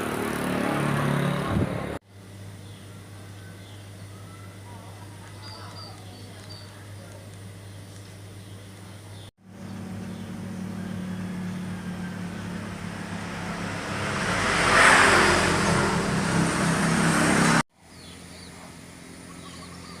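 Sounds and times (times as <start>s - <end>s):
vehicle engine and road noise: 0.0s - 3.8s, 5.2s - 20.0s
quiet outdoor background: 1.8s - 16.7s, 17.7s - 20.0s.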